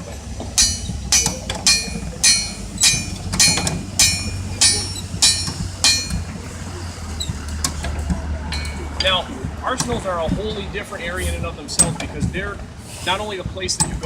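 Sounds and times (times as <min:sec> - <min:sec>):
hammer ringing on anvil: 0:00.6 - 0:06.3.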